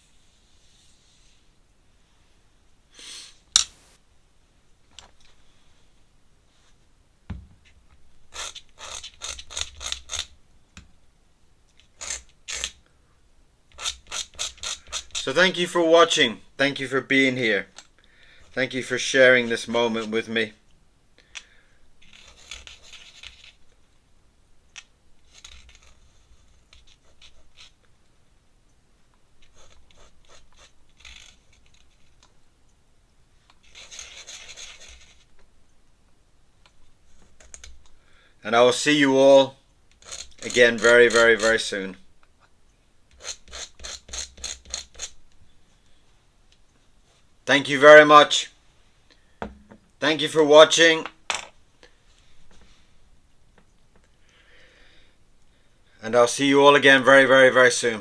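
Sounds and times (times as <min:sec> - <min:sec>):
scratching on paper: 0:22.0 - 0:23.6, 0:25.2 - 0:27.8, 0:29.4 - 0:32.2, 0:33.6 - 0:35.3, 0:40.0 - 0:41.6, 0:43.1 - 0:45.2
pen scratching on paper: 0:29.5 - 0:31.5, 0:33.6 - 0:35.3.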